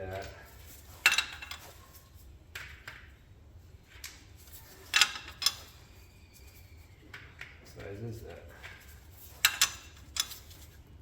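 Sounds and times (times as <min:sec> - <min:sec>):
metal hand tools clinking: 0:09.3 - 0:10.6.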